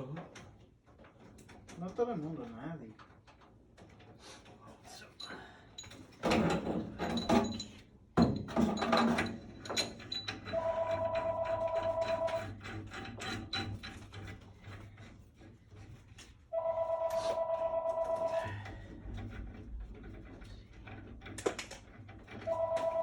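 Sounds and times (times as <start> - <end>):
telephone ringing: 10.5 - 12.5, 16.5 - 18.5, 22.5 - 23.0
rattling: 18.5 - 23.0.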